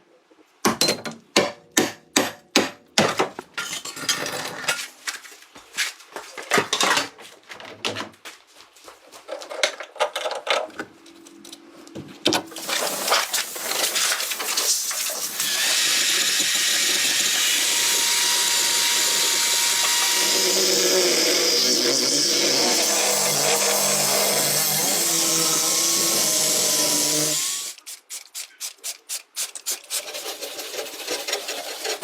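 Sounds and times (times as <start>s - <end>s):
power tool running: 15.2s - 27.8s.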